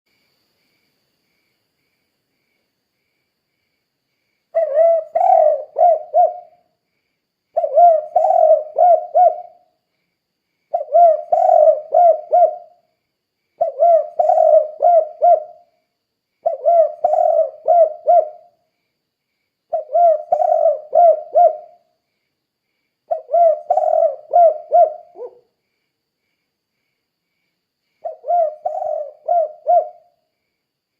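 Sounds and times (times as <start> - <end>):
dove cooing: 4.5 - 6.6, 7.5 - 9.7, 10.7 - 12.8, 13.6 - 15.7, 16.4 - 18.6, 19.7 - 21.8, 23.1 - 25.4, 28.0 - 30.2.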